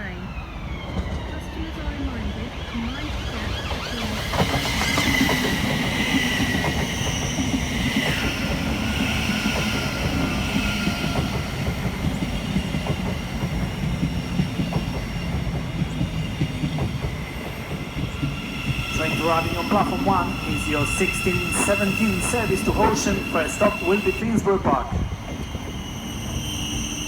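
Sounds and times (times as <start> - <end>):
train rumbling: 0.0 - 27.0
wheel squeal: 25.3 - 27.0.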